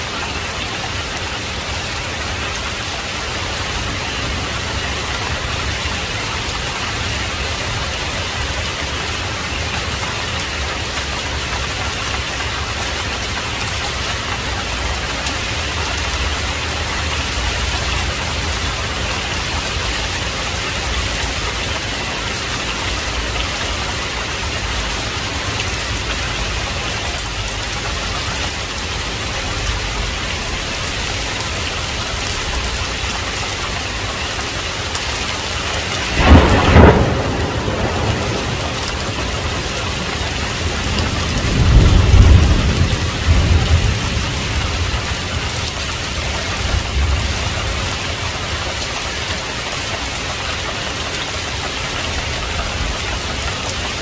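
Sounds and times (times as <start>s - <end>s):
heavy rain falling: 0.0s - 54.0s
close thunderclap: 35.4s - 48.5s.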